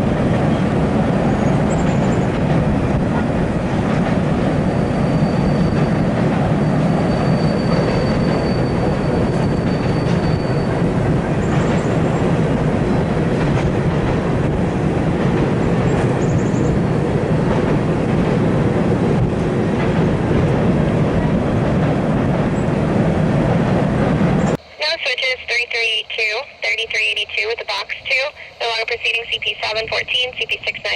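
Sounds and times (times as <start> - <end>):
train wheels clacking: 1.4 - 20.8.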